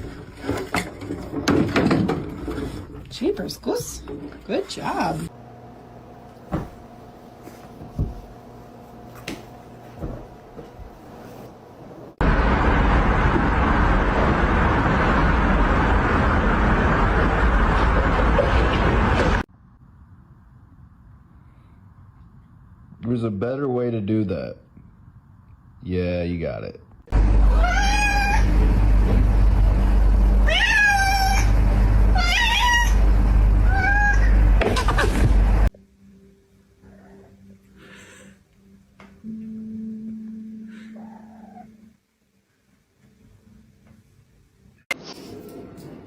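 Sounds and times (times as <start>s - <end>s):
low hum: 11.8s - 23.0s, 27.0s - 37.7s
loud rumble and hiss: 12.2s - 19.4s, 27.1s - 35.7s
cat meowing: 27.5s - 28.5s, 30.4s - 31.5s, 32.2s - 33.0s, 33.6s - 34.4s, 41.0s - 41.8s.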